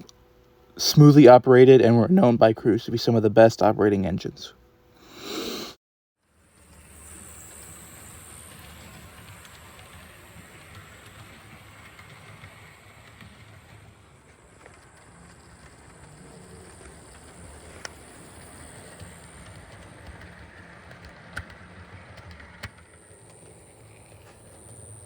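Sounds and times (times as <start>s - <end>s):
model train motor humming: 6.4s - 25.0s.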